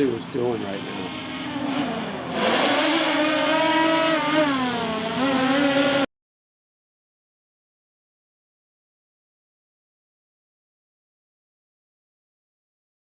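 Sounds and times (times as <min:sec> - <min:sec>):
drone propellers buzzing: 0:00.0 - 0:06.1.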